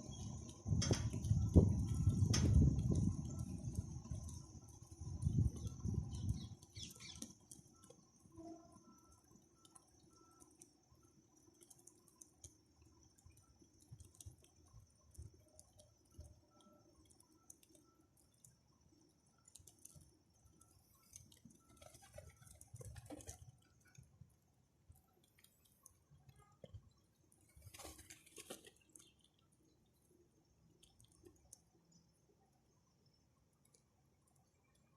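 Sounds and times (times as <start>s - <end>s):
faint clicks: 0.1s - 24.2s, 24.9s - 32.3s, 33.0s - 34.9s.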